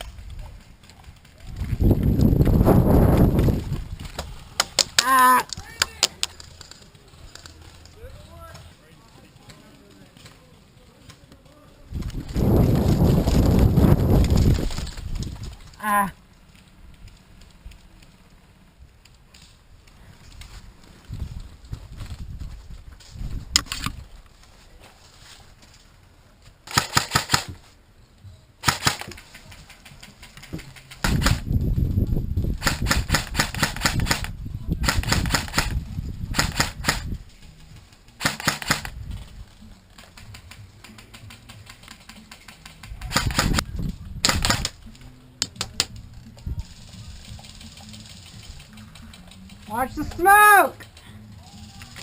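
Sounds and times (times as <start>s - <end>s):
wind rumble on microphone: 0.0s - 4.6s, 11.8s - 15.8s, 19.7s - 24.3s, 31.0s - 37.8s, 38.8s - 39.6s, 42.9s - 44.9s, 45.5s - 48.7s
airsoft gun firing full-auto: 26.7s - 27.5s, 28.6s - 29.2s, 38.2s - 38.9s.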